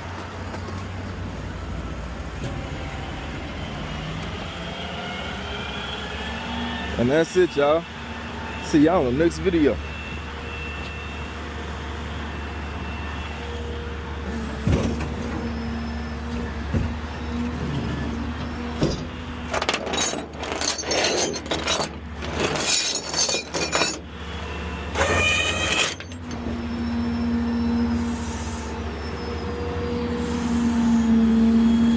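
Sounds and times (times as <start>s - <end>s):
metallic clattering and clinking: 18.8s - 24.1s.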